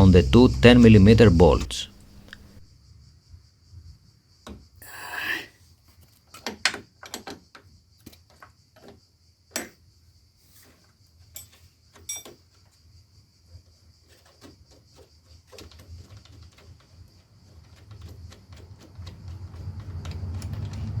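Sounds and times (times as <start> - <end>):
hand tools clicking on bolts: 15.5 - 21.0.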